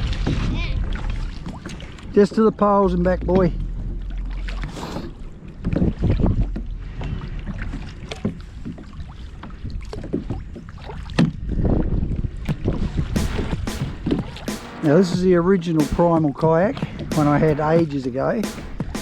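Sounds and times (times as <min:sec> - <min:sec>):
water splashing around kayaks: 0:00.0 - 0:13.2
wind rumbling on microphone: 0:02.8 - 0:13.2.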